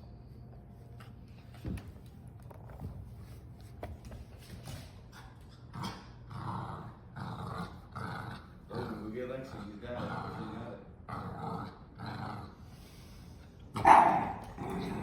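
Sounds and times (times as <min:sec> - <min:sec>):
dog growling in play: 0:05.1 - 0:12.8, 0:13.7 - 0:15.0.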